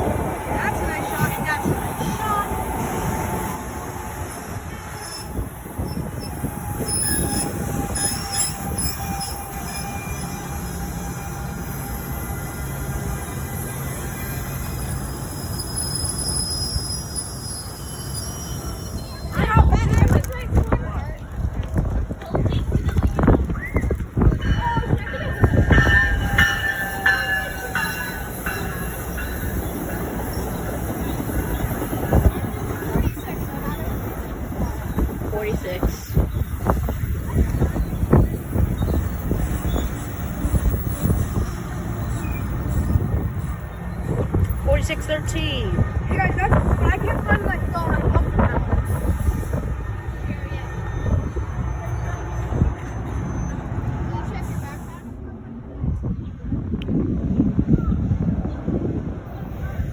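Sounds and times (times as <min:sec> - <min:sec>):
train wheels rumbling on rails: 0:00.0 - 0:59.9
high-pitched wheel squeal: 0:04.9 - 0:12.7, 0:13.6 - 0:19.6.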